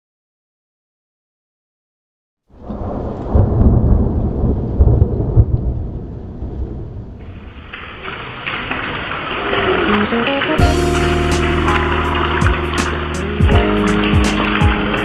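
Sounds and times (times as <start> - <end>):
thunder rumbling: 2.6 - 10.0, 10.6 - 15.0
heavy rain hissing: 7.2 - 15.0.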